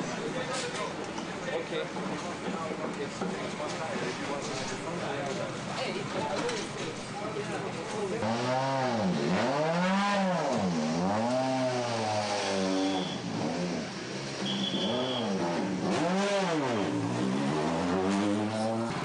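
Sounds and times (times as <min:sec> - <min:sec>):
rally car engine revving: 0:08.1 - 0:19.0
brief high whistle: 0:12.9 - 0:13.2, 0:14.4 - 0:15.4.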